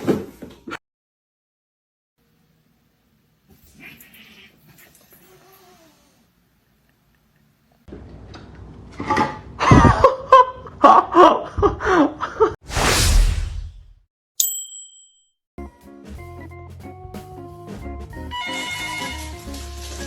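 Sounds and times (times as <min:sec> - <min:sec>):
bright ding: 0:14.4 - 0:15.3
background music: 0:15.6 - 0:20.0.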